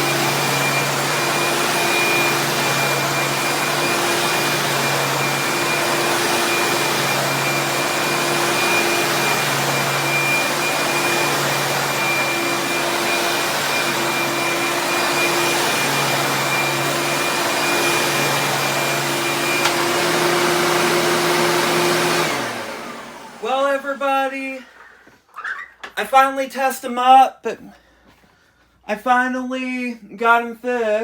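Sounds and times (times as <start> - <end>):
vacuum cleaner motor hum: 0.0 - 24.0.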